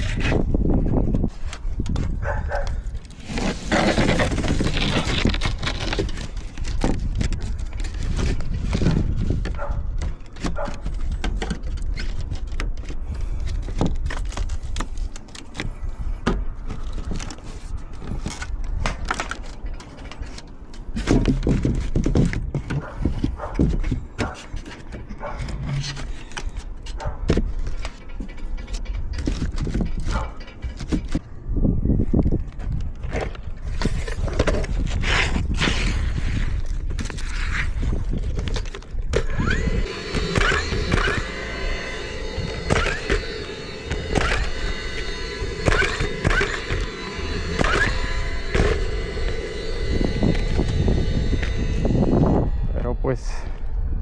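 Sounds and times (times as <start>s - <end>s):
low rumble: 39.2s - 54.0s.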